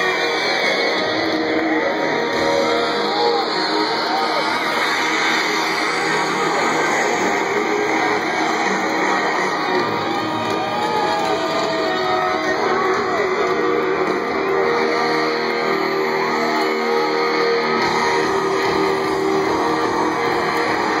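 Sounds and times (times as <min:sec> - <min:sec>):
live rock band playing: 0:09.0 - 0:21.0.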